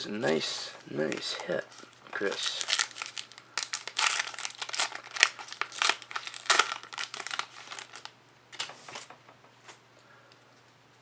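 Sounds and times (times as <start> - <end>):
plastic packaging crinkling: 0.2 - 9.0.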